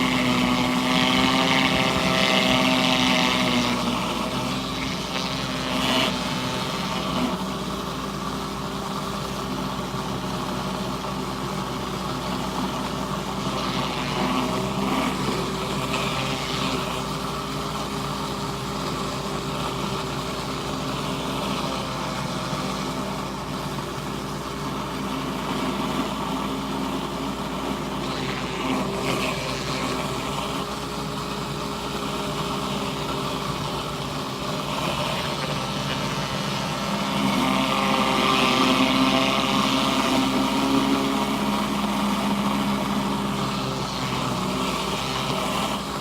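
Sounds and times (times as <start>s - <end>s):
pressure washer engine running: 0.0s - 46.0s.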